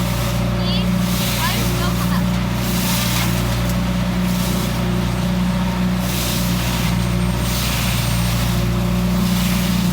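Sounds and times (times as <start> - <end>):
truck engine running: 0.0 - 9.9.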